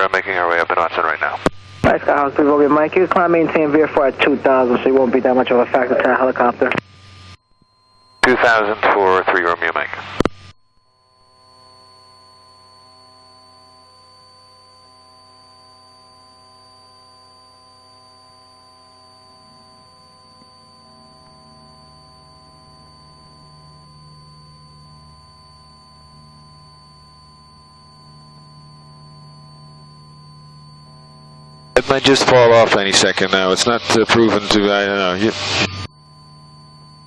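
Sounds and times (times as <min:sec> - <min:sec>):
low aircraft engine drone: 0:00.0 - 0:07.2, 0:18.1 - 0:37.0
electrical whine: 0:00.0 - 0:37.0.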